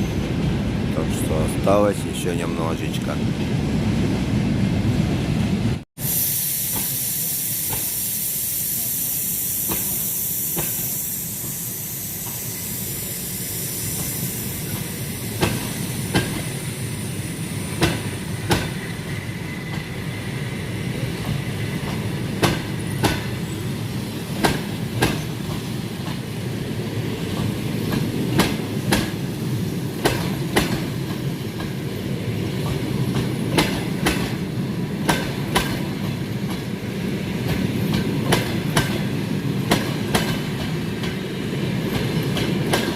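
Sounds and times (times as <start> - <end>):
train rumbling: 0.0 - 42.9
hiss: 6.0 - 26.5.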